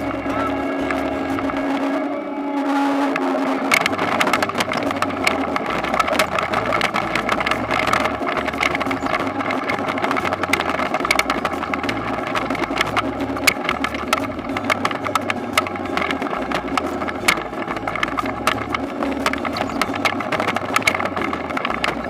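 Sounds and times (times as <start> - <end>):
harvesting machine engine drone: 0.0 - 22.0
machine clattering and rattling: 3.6 - 22.0.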